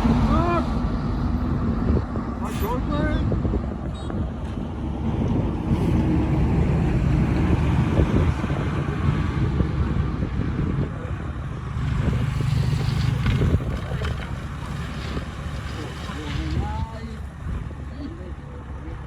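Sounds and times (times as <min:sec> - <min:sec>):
heavy machinery diesel engine: 0:00.0 - 0:19.0.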